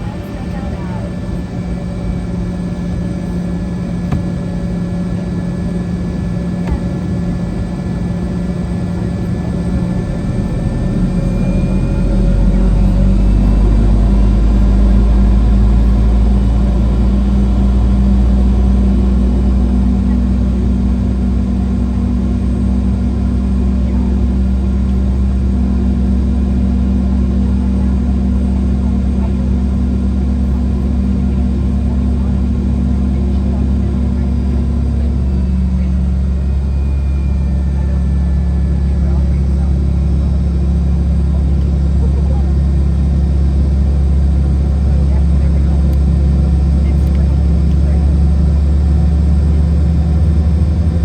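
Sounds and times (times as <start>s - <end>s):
jet engines rumbling and humming: 0.0s - 51.0s.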